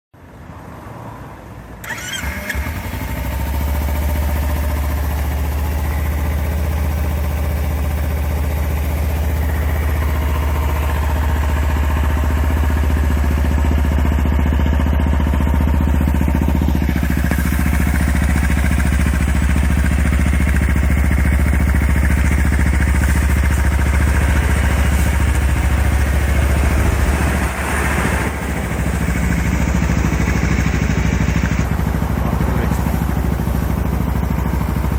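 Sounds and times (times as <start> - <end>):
motorcycle engine idling: 1.8 - 34.9
motorcycle engine starting: 1.8 - 34.9.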